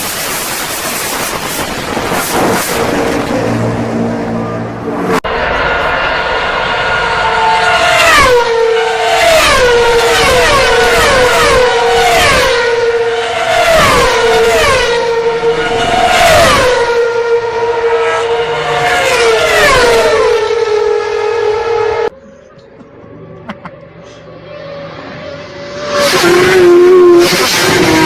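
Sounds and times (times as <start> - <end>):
racing engines passing by: 2.3 - 28.0.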